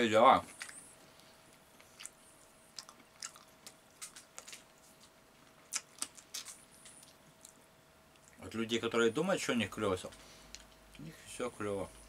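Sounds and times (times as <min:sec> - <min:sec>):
lip smacks: 0:00.4 - 0:08.4
wet chewing: 0:00.4 - 0:08.4.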